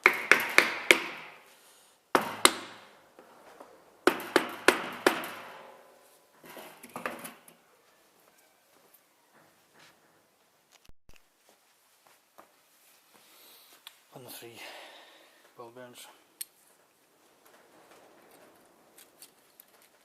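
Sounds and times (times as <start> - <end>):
wooden hammer knocking on metal: 0.0 - 1.4, 2.2 - 2.9, 4.0 - 5.7.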